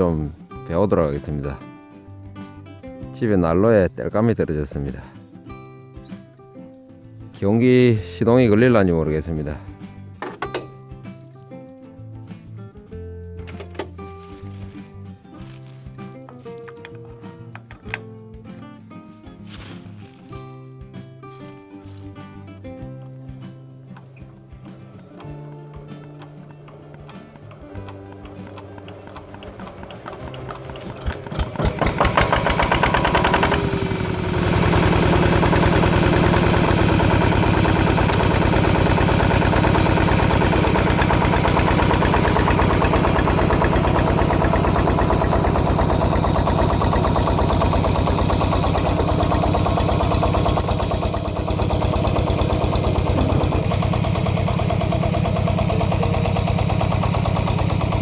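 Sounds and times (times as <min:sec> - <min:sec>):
diesel engine starting and chugging: 0:24.9 - 0:58.0.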